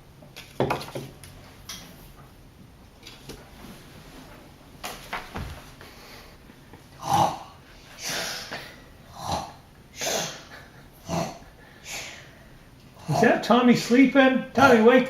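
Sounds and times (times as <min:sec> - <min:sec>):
child pretend snoring: 0:07.0 - 0:12.2, 0:13.0 - 0:13.4
breathy blowing out: 0:07.0 - 0:13.4.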